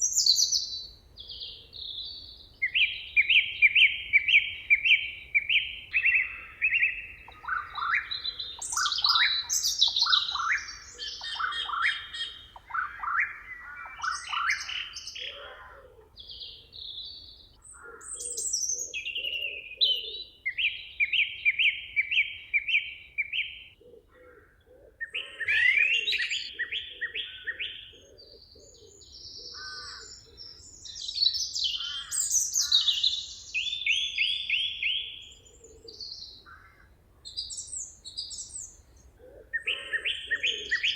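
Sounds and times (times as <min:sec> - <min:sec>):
low-pitched repeated bird call: 0:00.0 - 0:40.9
songbirds chorus: 0:00.0 - 0:40.9.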